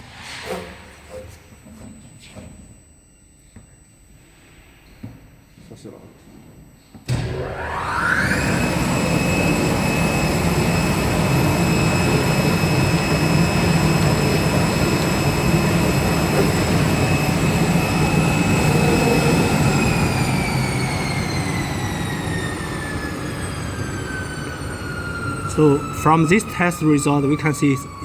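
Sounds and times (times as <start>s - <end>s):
cutting machine high whine: 7.1s - 28.0s.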